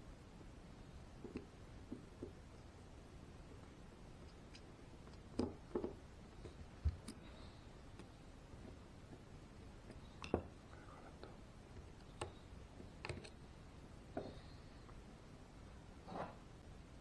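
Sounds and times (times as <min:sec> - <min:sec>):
faint clicks and taps of parts: 0:01.2 - 0:02.4, 0:03.6 - 0:13.4.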